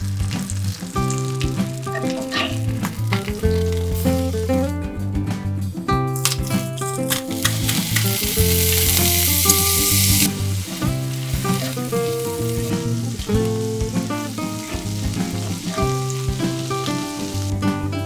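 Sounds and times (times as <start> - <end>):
food sizzling in a frying pan: 0.0 - 4.5, 6.2 - 18.0
background music: 0.0 - 18.0.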